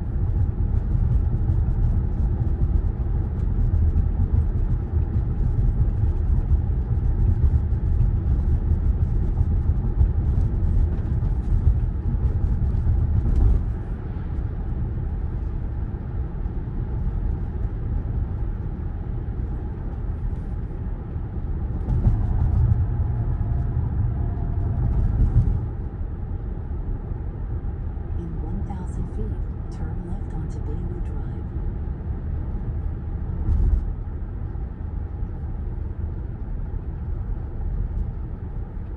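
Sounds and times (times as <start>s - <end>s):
tyre and road rumble: 18.1s - 27.0s.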